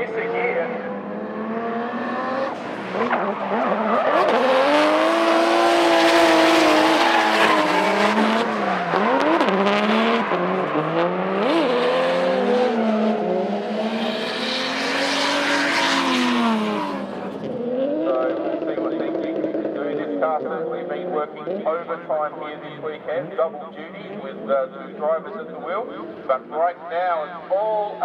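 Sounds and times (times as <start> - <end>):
car engines revving high: 0.0 - 26.5.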